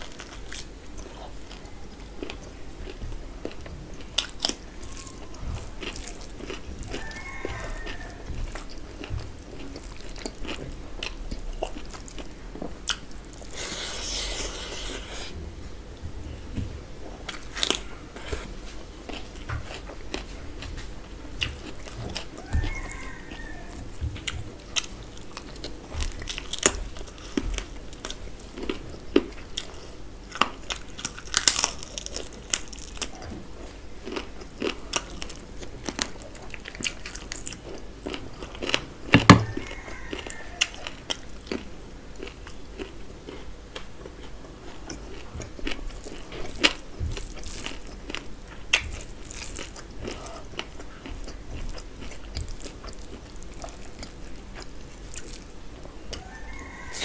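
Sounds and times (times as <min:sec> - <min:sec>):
chewing crunches and clicks: 0:00.0 - 0:13.5, 0:19.1 - 0:57.0.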